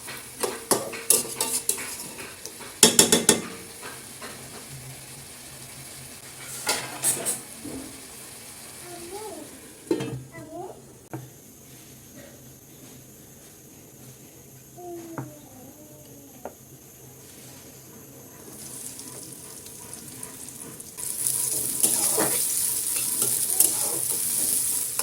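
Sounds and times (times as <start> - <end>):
utensil clinking against pan: 0.0 - 4.5
utensil scraping frying pan: 0.0 - 10.3, 18.5 - 25.0
food sizzling: 0.0 - 11.1, 18.4 - 25.0
faint voice: 14.8 - 17.2.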